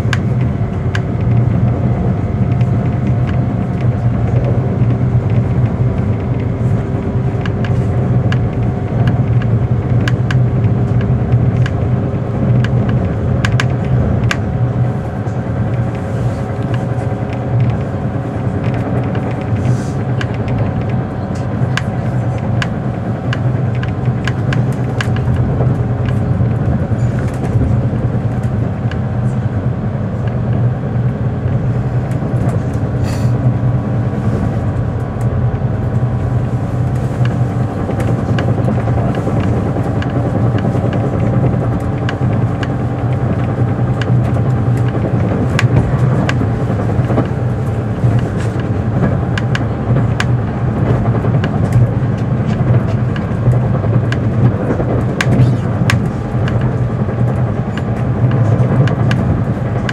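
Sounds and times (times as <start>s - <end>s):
train wheels rumbling on rail: 0.0s - 59.9s
small clicks and rattles: 36.9s - 59.9s.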